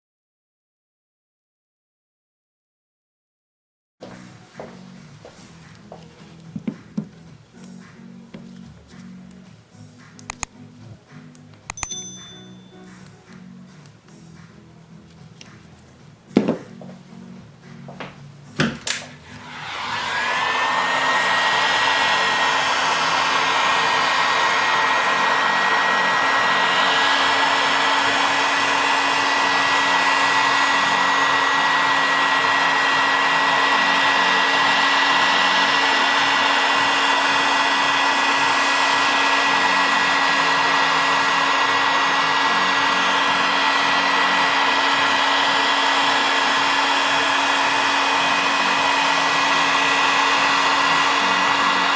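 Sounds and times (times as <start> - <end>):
switch clicks: 10.2 - 10.6
heat gun fan whine: 18.6 - 51.9.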